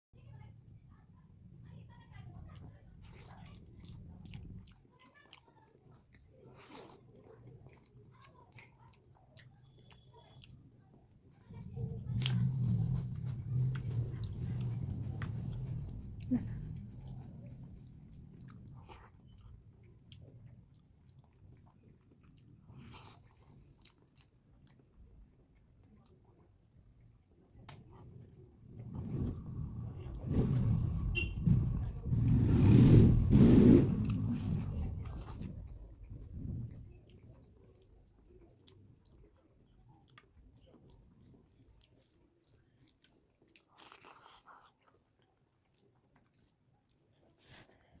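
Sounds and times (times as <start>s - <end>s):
chewing with wet mouth clicks: 2.5s - 29.7s, 34.0s - 48.0s
person chewing crunchy food: 40.0s - 48.0s.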